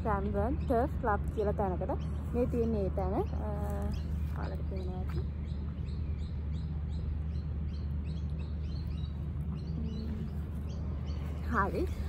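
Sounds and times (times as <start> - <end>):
low steady rumble: 0.0 - 12.0
small birds chirping: 0.0 - 12.0.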